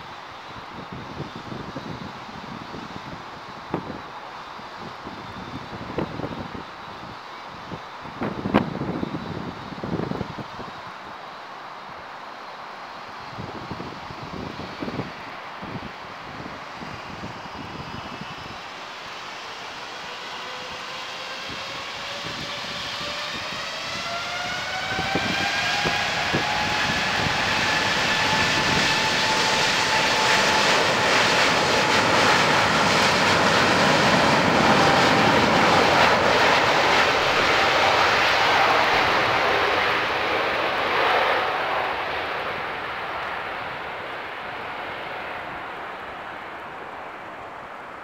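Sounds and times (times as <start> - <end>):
jet engines spooling up: 16.8 - 48.0
loud jet roar: 16.8 - 48.0.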